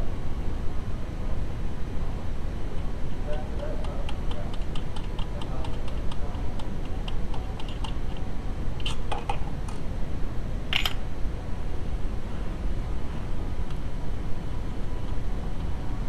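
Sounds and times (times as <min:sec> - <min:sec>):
light clicking and tapping: 0:03.3 - 0:09.8.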